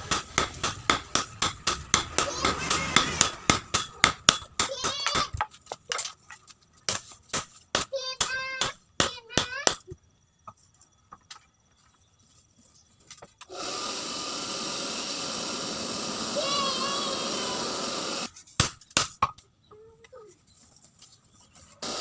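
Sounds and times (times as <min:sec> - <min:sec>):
hammer striking steel on anvil: 0:00.0 - 0:05.4, 0:06.9 - 0:10.0, 0:18.6 - 0:19.4.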